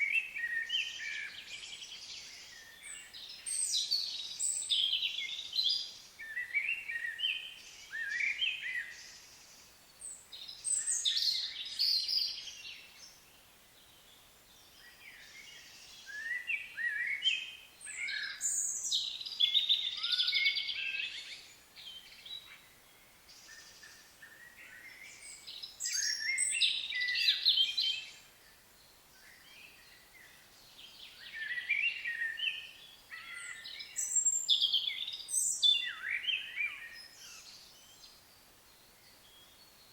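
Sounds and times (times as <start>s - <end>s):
songbird warbling and trilling: 23.3s - 28.2s, 29.2s - 38.2s.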